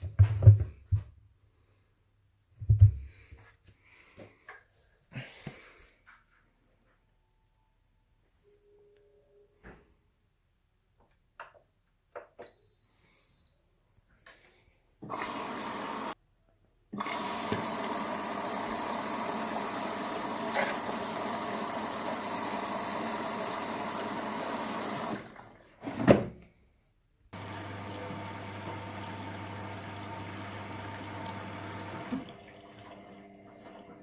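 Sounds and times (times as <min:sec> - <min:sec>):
washing machine beep: 0:12.4 - 0:13.7
water rushing into machine: 0:17.0 - 0:26.0, 0:27.4 - 0:33.9.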